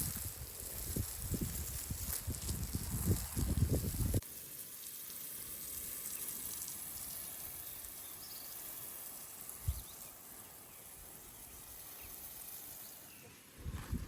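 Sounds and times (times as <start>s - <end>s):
low rumbling wind on microphone: 0.0s - 4.2s, 13.6s - 14.0s
faint outdoor hiss: 0.0s - 14.0s.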